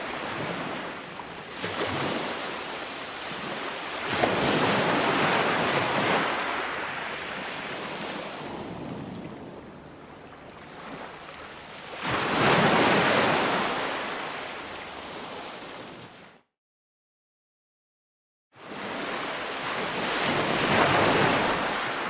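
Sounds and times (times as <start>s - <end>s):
waves washing ashore: 0.0s - 16.4s, 18.6s - 22.0s
wave breaking loudly: 4.3s - 11.3s.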